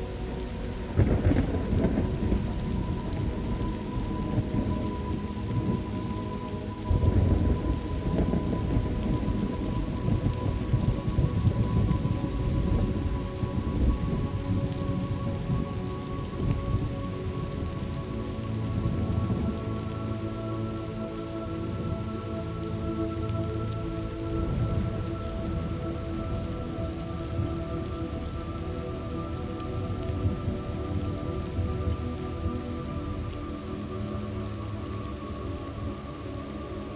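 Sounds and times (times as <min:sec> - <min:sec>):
heavy rain falling: 0:00.0 - 0:36.9
soft sustained drone: 0:00.0 - 0:36.9
low rumbling thunder: 0:00.9 - 0:06.1, 0:06.8 - 0:15.7.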